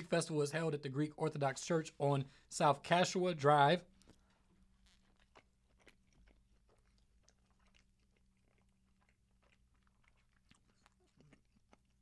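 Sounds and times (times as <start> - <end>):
soft chewing with mouth clicks: 3.9 - 12.0.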